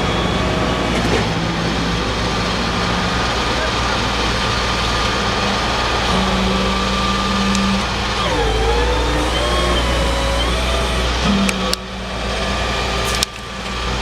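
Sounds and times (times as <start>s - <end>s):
truck engine humming: 0.0s - 14.0s
wavering whine: 4.0s - 14.0s.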